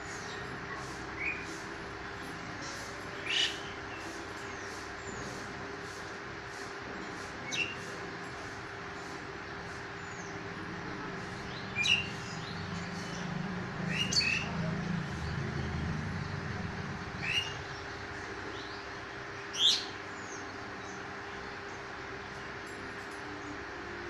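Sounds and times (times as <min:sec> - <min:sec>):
sharp bird calls: 0:11.5 - 0:14.6, 0:17.2 - 0:18.8.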